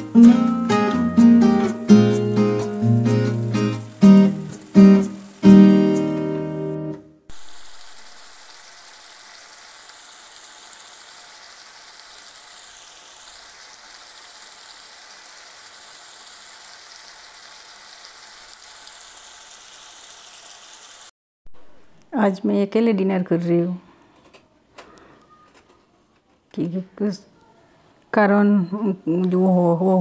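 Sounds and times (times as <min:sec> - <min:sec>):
curry sizzling in a pan: 0:00.0 - 0:06.6, 0:07.3 - 0:21.1
acoustic guitar music: 0:00.0 - 0:07.2
small pops of sizzling food: 0:07.3 - 0:21.1.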